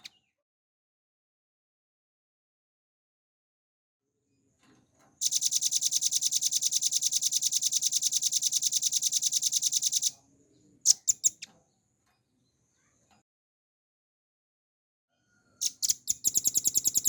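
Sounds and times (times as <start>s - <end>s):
bird singing a fast trill: 5.2s - 10.1s, 10.9s - 11.5s, 15.6s - 17.0s.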